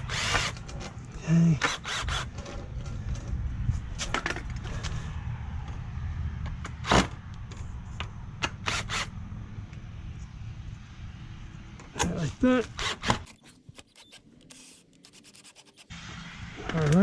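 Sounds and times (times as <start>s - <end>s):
steady low rumble: 2.1s - 12.4s.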